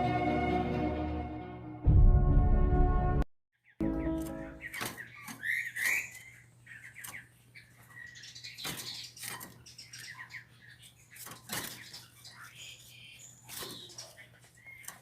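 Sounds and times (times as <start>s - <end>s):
songbird chirping: 3.6s - 15.0s.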